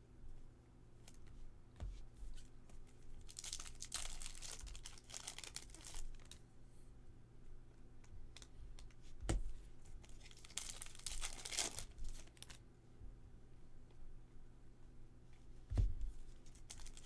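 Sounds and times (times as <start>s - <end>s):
wrappers tearing and crinkling: 3.2s - 6.4s, 10.1s - 12.6s, 16.5s - 17.0s.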